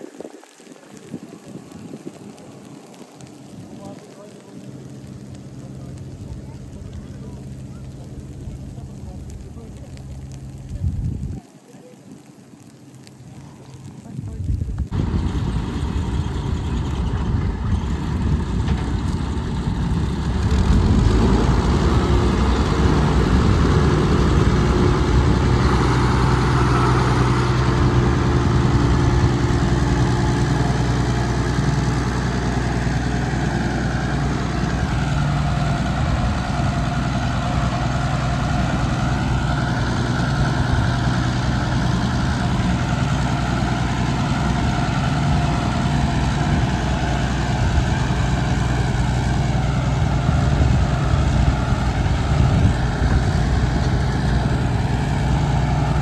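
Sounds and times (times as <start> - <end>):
heavy machinery engines running: 14.9 - 56.0.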